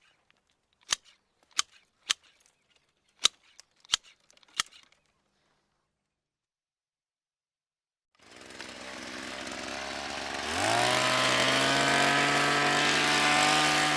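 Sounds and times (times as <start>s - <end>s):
hedge trimmer revving: 8.2s - 13.9s.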